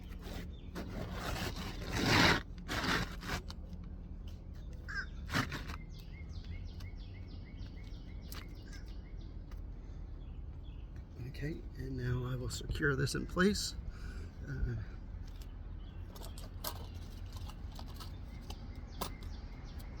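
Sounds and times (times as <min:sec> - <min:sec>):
shingle rustling and scraping: 0:00.0 - 0:07.0, 0:15.2 - 0:20.0
bird chirping: 0:04.6 - 0:14.2, 0:14.9 - 0:20.0.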